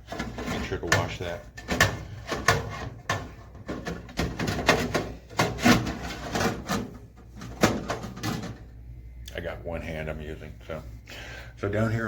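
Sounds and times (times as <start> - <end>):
appliance parts knocking and scraping: 0.0 - 8.8.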